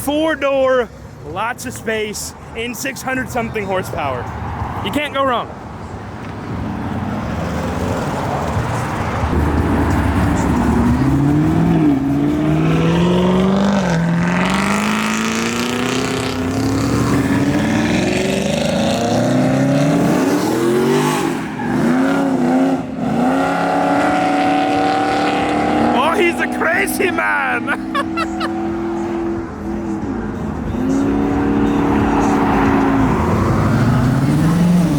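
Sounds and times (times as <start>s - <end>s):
car engine accelerating: 7.5s - 34.9s.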